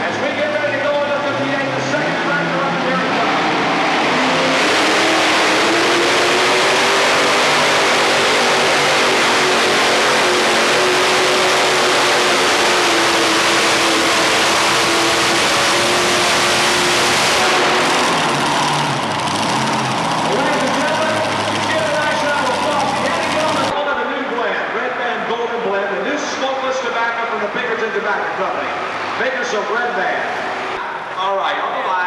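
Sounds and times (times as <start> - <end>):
tractor engines running flat out: 0.0 - 23.8.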